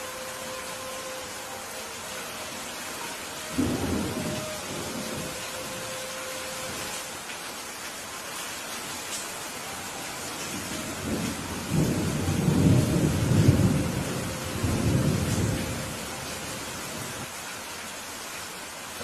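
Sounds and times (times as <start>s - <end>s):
steady rain: 0.0s - 19.0s
thunder rumbling: 3.5s - 5.9s, 10.6s - 16.2s.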